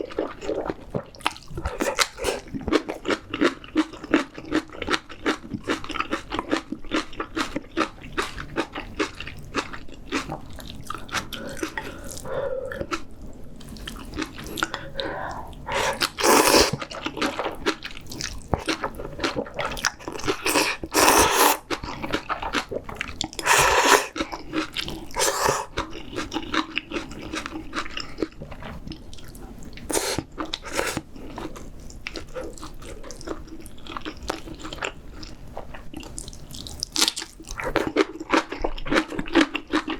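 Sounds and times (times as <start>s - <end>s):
wet chewing: 0.0s - 39.9s
loud slurps of noodles: 15.7s - 16.8s, 20.3s - 21.6s, 23.4s - 24.2s, 25.2s - 25.7s, 29.9s - 31.0s.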